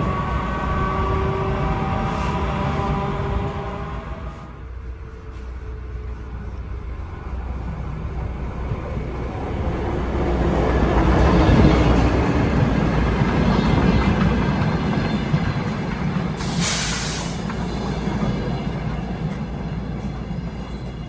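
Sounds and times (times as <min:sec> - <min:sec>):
train rumbling on rails: 0:00.0 - 0:21.0
brief hiss: 0:16.4 - 0:17.6.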